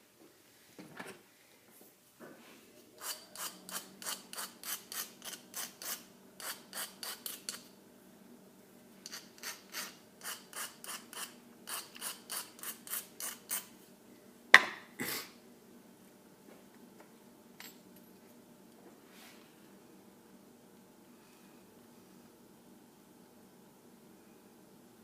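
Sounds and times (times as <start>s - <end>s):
sharp knocks of tool set down: 14.6s - 14.9s.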